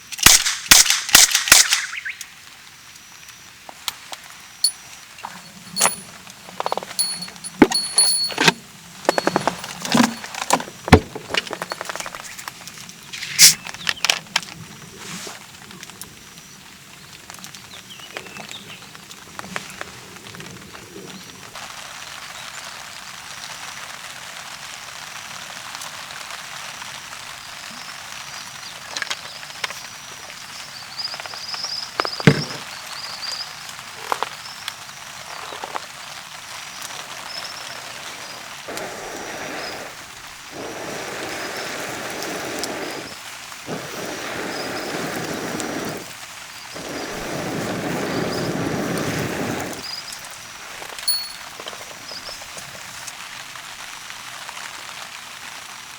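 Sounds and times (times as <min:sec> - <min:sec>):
steady rain: 0:08.6 - 0:55.9
rushing noises: 0:38.7 - 0:49.9.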